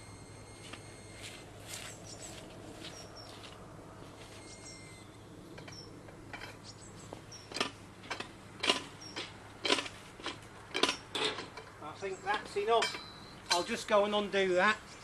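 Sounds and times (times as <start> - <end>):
hand winch metallic clicks: 7.5 - 11.7.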